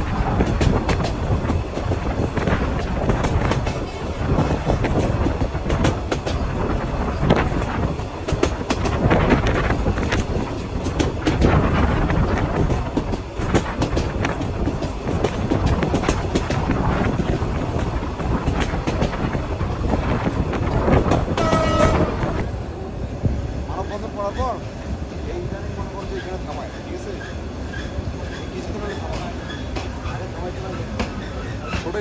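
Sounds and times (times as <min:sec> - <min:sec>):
wheels clattering over rail joints: 0:00.0 - 0:22.4
train rumble: 0:00.0 - 0:32.0.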